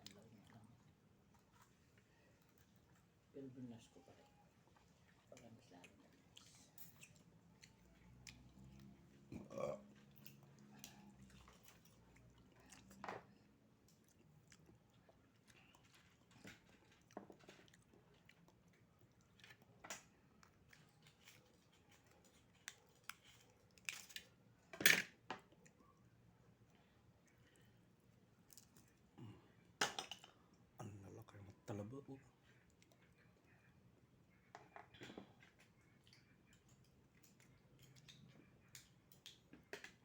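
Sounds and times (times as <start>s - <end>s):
wet chewing and slurping: 6.1s - 19.7s.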